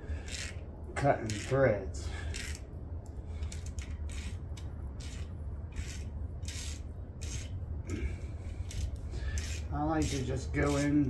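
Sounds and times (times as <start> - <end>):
ratchet clicks: 0.2 - 0.6, 1.2 - 1.6, 2.3 - 7.6, 8.6 - 11.0
metal-on-metal scrapes: 5.0 - 7.6, 8.6 - 11.0.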